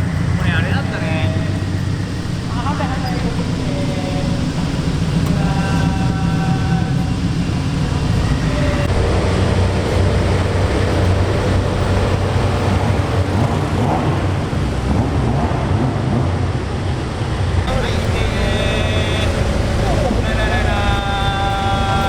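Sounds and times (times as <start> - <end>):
car engine idling: 0.0 - 15.3, 16.0 - 22.0.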